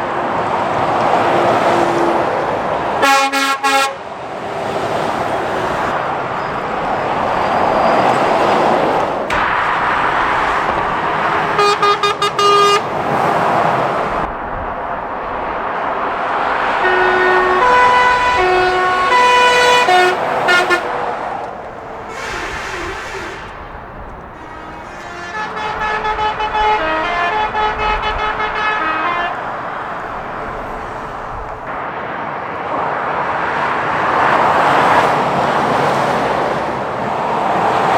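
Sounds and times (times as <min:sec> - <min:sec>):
traffic passing at speed: 0:00.0 - 0:37.9
horn short toots: 0:03.0 - 0:04.0, 0:05.9 - 0:14.3, 0:16.6 - 0:21.1, 0:21.8 - 0:31.6
musical horn notes: 0:03.0 - 0:04.0, 0:10.6 - 0:13.2, 0:16.6 - 0:21.0, 0:24.3 - 0:30.4.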